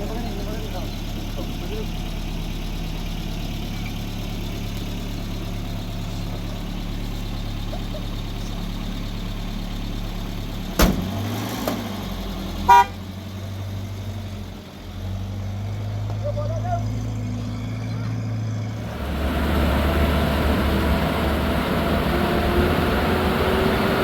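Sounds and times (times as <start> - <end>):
vehicle engine running: 0.0 - 24.0
sharp knock: 10.8 - 11.1
short horn toot: 12.7 - 13.0.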